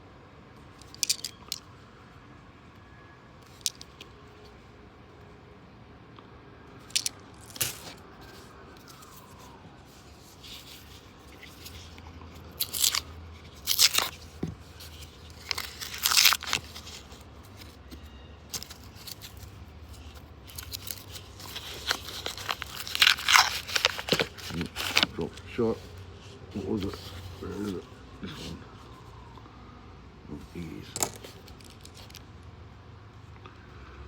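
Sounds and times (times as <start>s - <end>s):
paper wrappers tearing and crinkling: 6.9s - 9.5s, 10.2s - 25.7s.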